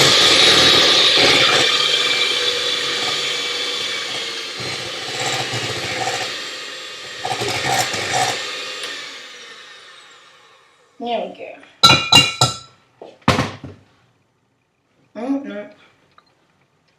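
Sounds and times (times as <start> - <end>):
blender crushing ingredients: 0.0 - 10.8.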